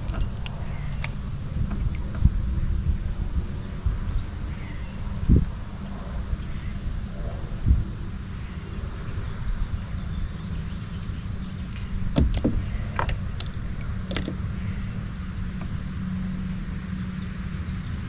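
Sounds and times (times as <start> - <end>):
sharp clicks and knocks: 0.0 - 2.3, 11.8 - 14.5
steady low rumble: 0.0 - 18.0.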